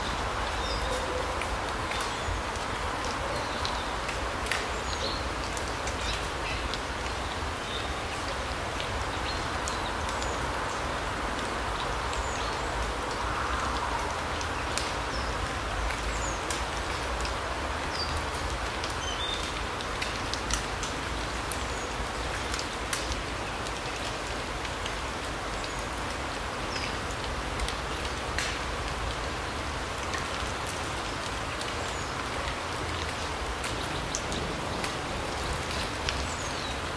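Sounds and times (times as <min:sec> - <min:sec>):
light ticks: 0:15.8 - 0:21.6, 0:26.7 - 0:29.1.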